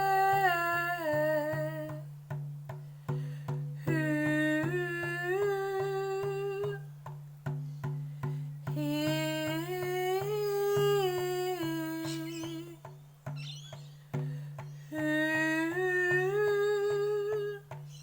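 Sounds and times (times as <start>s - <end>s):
woman singing wordlessly: 0.0s - 2.2s, 3.8s - 7.2s, 8.6s - 13.0s, 14.6s - 18.0s.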